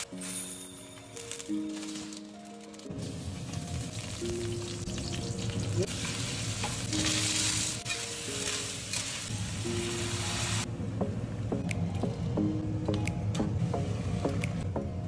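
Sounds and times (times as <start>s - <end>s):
soft background music: 0.0s - 15.0s
food sizzling in a hot pan: 3.1s - 10.6s.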